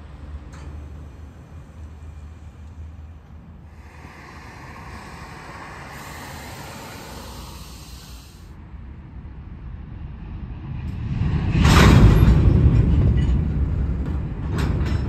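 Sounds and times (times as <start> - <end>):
freight train rumbling: 0.0 - 15.0
air hissing: 3.6 - 8.6.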